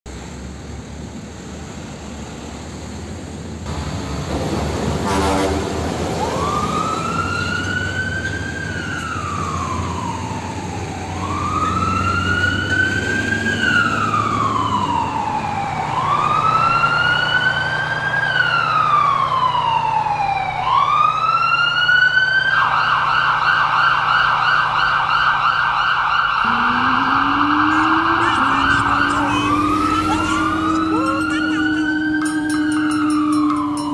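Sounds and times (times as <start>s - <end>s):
ambulance siren wailing: 5.9s - 33.9s
truck engine rumbling: 26.3s - 33.9s.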